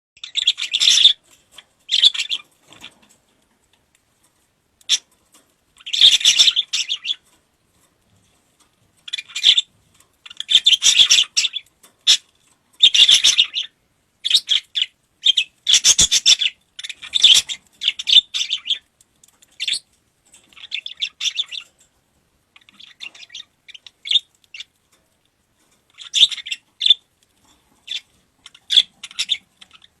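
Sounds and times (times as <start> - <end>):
lovebirds chattering: 0.2 - 3.2, 4.8 - 5.2, 5.8 - 7.4, 9.0 - 21.9, 22.5 - 24.8, 25.9 - 30.0.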